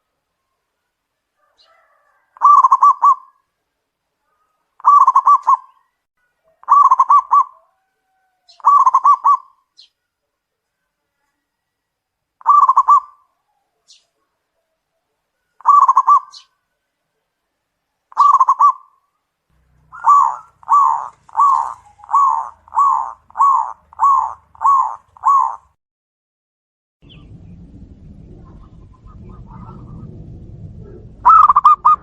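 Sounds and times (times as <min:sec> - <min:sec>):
doves cooing: 0:01.4 - 0:03.4, 0:04.8 - 0:05.8, 0:06.5 - 0:09.6, 0:12.4 - 0:13.8, 0:15.6 - 0:16.5, 0:18.1 - 0:18.9, 0:19.6 - 0:25.8, 0:28.3 - 0:32.0
low steady noise: 0:27.0 - 0:32.0.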